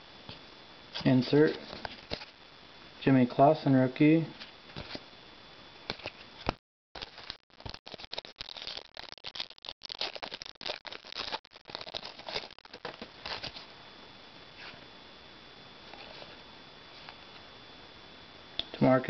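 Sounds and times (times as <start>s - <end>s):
cards and foil pack rustling: 1.0s - 2.3s, 5.9s - 13.7s.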